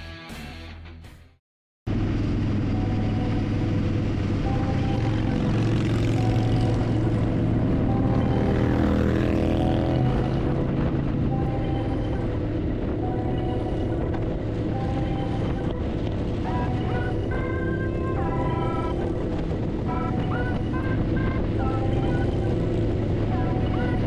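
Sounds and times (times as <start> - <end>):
motorcycle engine running: 1.9 - 24.0
wind rush: 6.7 - 24.0.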